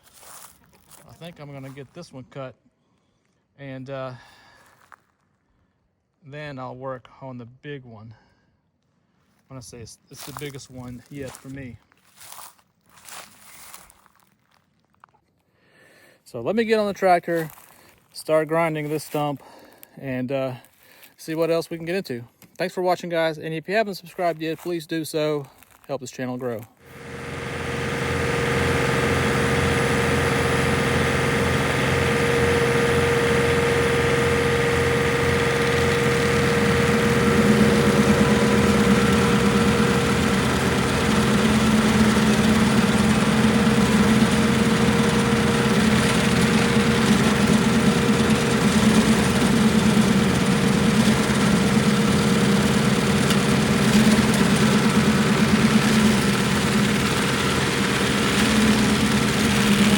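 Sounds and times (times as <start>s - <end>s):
tractor diesel engine running: 26.8s - 59.9s.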